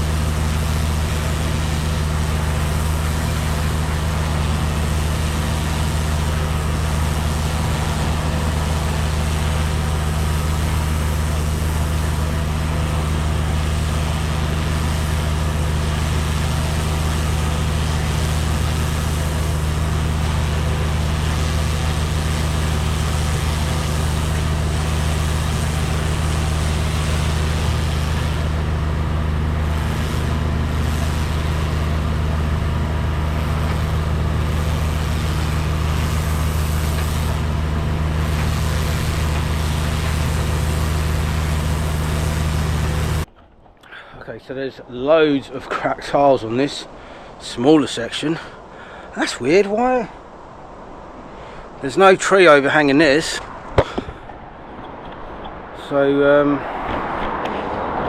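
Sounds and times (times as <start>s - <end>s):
water jet hissing: 0.0s - 43.3s
pressure washer engine hum: 0.0s - 44.1s, 44.9s - 58.0s.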